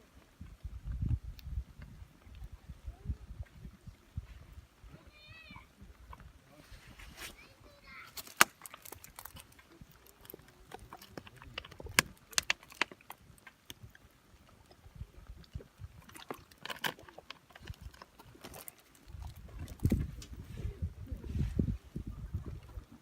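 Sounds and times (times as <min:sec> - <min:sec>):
wood fire crackling: 0:07.2 - 0:20.5.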